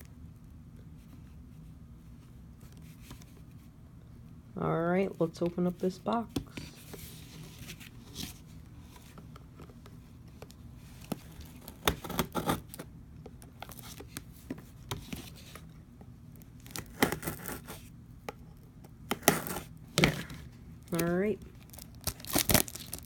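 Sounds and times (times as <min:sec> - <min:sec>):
cardboard tearing and scraping: 0:11.2 - 0:12.9, 0:16.6 - 0:17.9, 0:19.1 - 0:20.4, 0:21.7 - 0:23.0.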